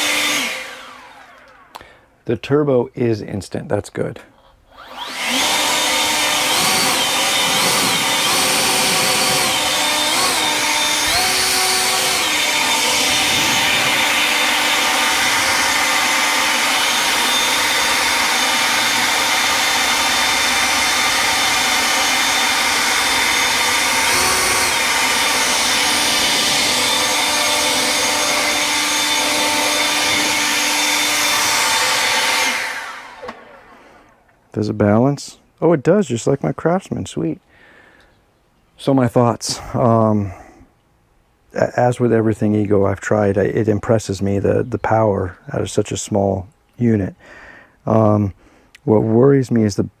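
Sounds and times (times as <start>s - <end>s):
leaf blower fan whine: 0.0s - 2.0s, 4.7s - 34.3s.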